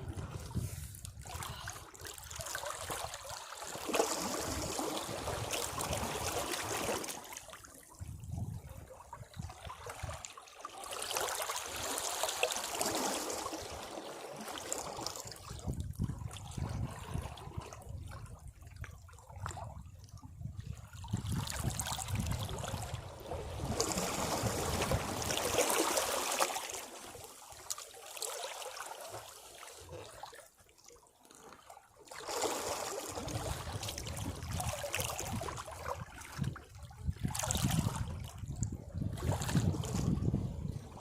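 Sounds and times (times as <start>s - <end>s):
sea waves washing over rocks: 2.6s - 7.3s, 23.1s - 27.3s.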